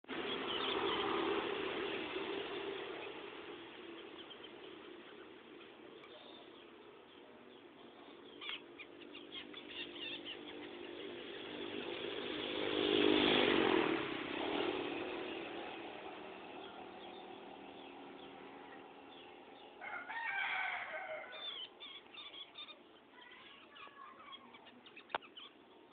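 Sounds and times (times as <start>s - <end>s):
motor vehicle passing: 0.1s - 22.9s
bird chirps: 0.2s - 1.4s, 3.8s - 11.5s, 21.3s - 25.9s.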